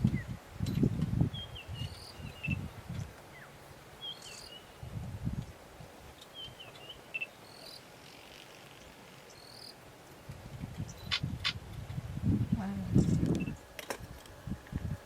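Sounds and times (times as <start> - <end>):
birds chirping: 0.0 - 4.9, 6.1 - 9.8.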